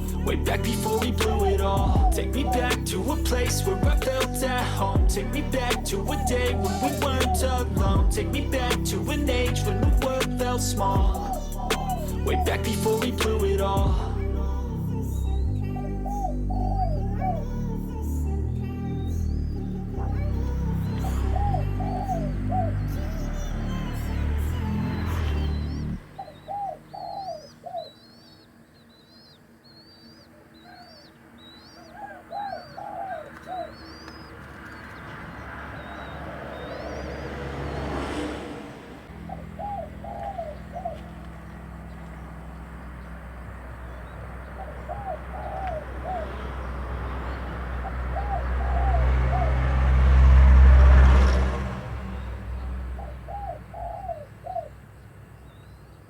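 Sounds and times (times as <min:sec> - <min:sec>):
dove cooing: 0:00.0 - 0:14.4, 0:15.2 - 0:17.7, 0:19.3 - 0:51.4, 0:52.8 - 0:55.8
low rumble: 0:00.0 - 0:26.0
small bird chirping: 0:18.9 - 0:37.4, 0:39.1 - 0:49.0.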